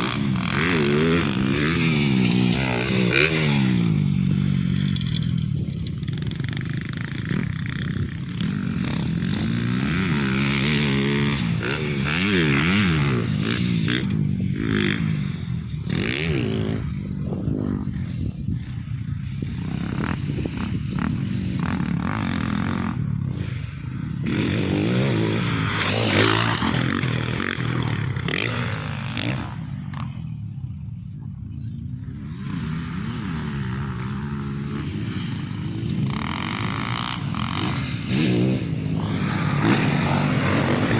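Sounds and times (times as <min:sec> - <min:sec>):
off-road vehicle engine revving: 0:08.5 - 0:16.9.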